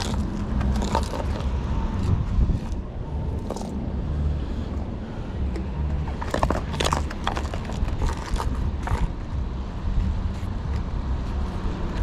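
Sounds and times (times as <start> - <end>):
sharp clicks and scrapes: 0.0 - 3.8, 6.0 - 9.2
low rumble: 0.0 - 11.3.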